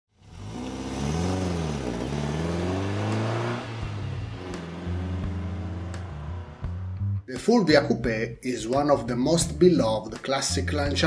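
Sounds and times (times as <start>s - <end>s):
car engine accelerating: 0.1s - 7.3s.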